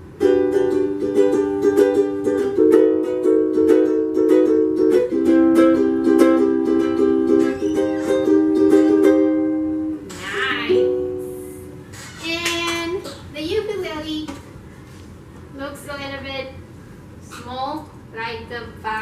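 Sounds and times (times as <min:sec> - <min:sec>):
ukulele strumming: 0:00.0 - 0:13.1.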